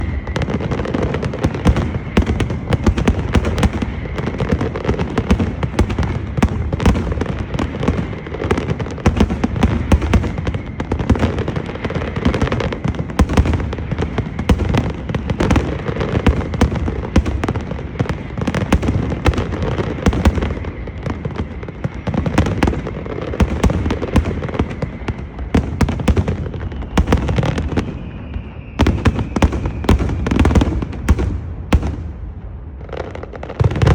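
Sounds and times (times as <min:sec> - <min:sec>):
deep firework booms: 0:00.0 - 0:33.9
firecrackers banging: 0:00.0 - 0:33.9.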